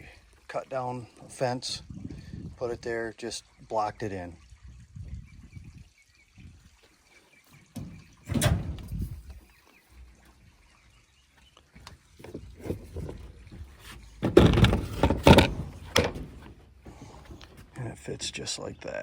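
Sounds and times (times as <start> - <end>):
knocks and thumps of fittings: 7.6 - 9.4, 12.2 - 17.8.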